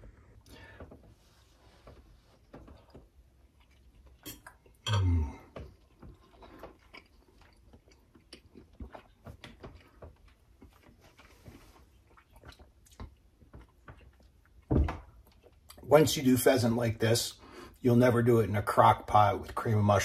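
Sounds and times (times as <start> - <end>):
person chewing food: 0.0 - 15.9.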